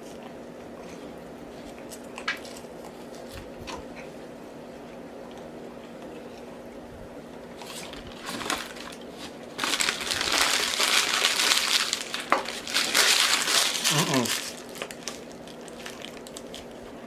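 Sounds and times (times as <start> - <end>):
paper packaging crinkling: 7.6 - 17.0.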